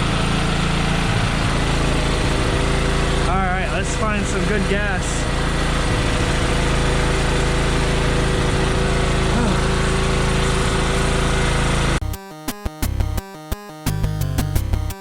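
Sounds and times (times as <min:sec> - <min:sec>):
small gasoline engine running: 0:00.0 - 0:13.2, 0:13.8 - 0:15.0
music: 0:11.6 - 0:15.0.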